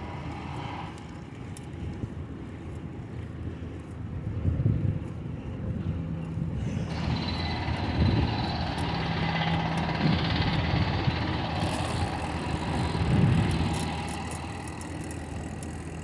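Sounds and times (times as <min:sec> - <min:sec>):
wind buffeting microphone: 0:00.0 - 0:16.0
vehicle engine idling: 0:06.6 - 0:16.0.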